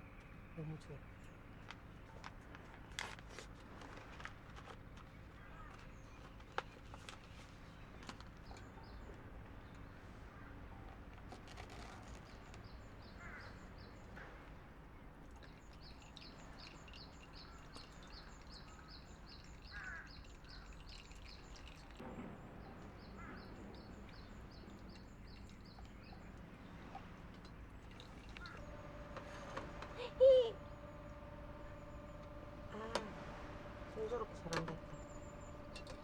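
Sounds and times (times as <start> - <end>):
low steady background noise: 0.0 - 36.0
other bird calls: 12.2 - 14.5, 15.4 - 36.0
bird chirping: 15.3 - 36.0.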